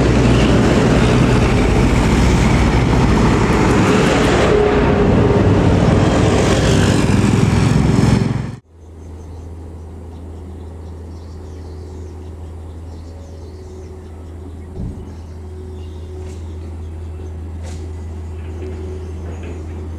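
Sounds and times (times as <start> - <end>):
heavy vehicle passing close: 0.0 - 8.6
low engine hum: 0.0 - 19.9
road noise: 0.0 - 19.9.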